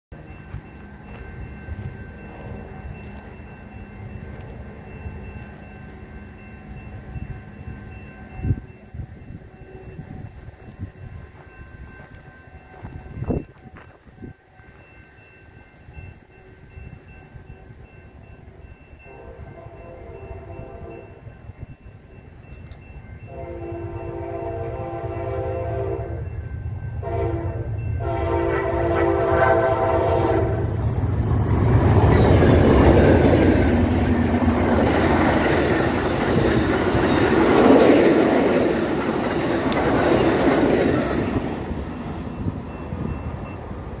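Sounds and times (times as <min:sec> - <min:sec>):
wheels on rail: 0:00.1 - 0:44.0
locomotive engine noise: 0:16.2 - 0:44.0
train horn blasts: 0:19.0 - 0:21.4, 0:23.3 - 0:26.4, 0:27.0 - 0:30.8.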